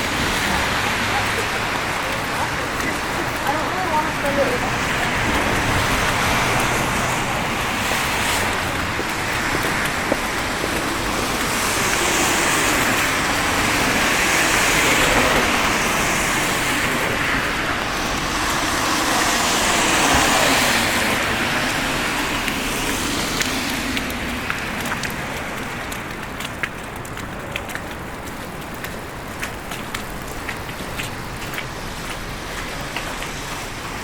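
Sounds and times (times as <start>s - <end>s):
tyres hissing through slush: 0.0s - 25.8s
cars passing: 0.0s - 34.0s.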